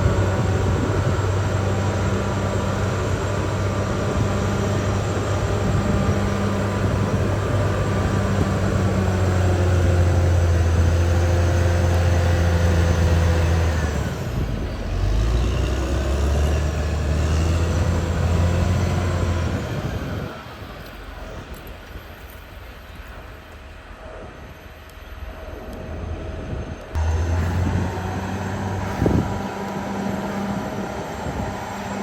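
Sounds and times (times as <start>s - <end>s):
bulldozer diesel engine running: 0.0s - 32.0s.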